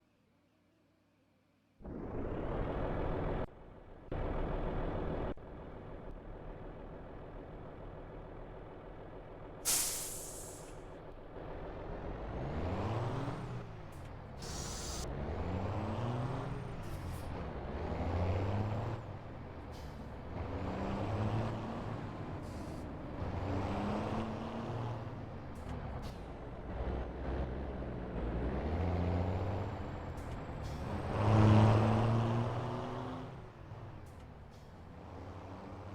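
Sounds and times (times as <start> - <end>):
truck engine idling and revving: 1.8 - 35.9
sharp air hiss: 9.7 - 10.8, 14.4 - 15.0.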